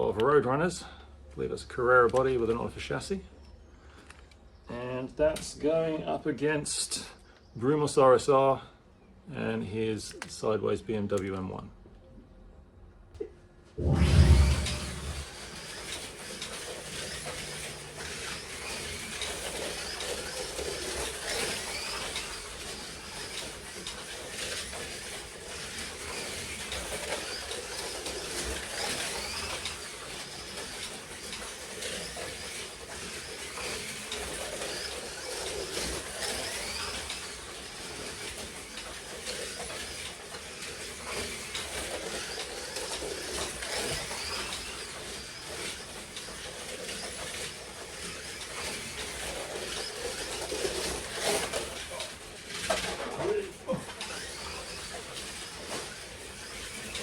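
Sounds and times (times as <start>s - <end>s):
slot car motors whirring: 13.8s - 57.0s.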